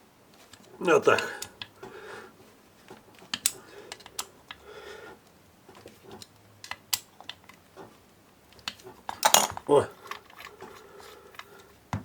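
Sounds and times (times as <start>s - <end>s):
hand tool clicking on metal parts: 2.9s - 4.6s, 8.5s - 11.9s.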